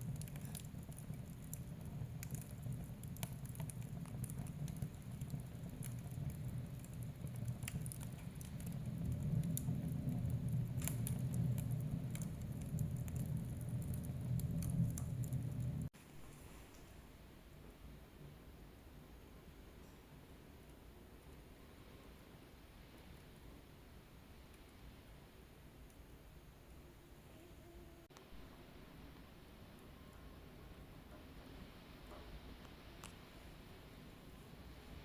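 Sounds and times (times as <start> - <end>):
fire crackles and pops: 0.0 - 15.9
low rumble of flames: 0.0 - 15.9.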